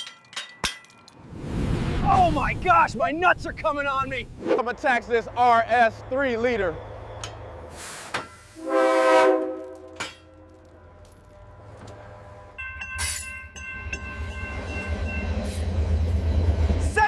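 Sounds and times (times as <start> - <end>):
air hiss: 7.7 - 8.6
train horn blast: 8.5 - 10.5.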